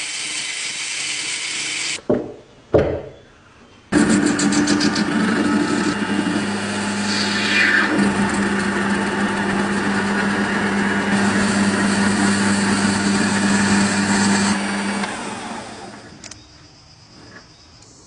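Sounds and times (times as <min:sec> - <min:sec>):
small electric motor whirring: 0:00.0 - 0:02.0, 0:03.9 - 0:16.4.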